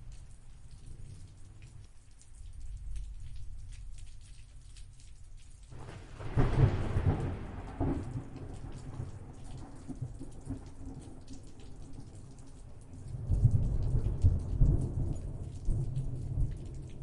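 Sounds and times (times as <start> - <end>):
rain falling: 0.0 - 17.0
thunderclap rolling: 5.7 - 11.0.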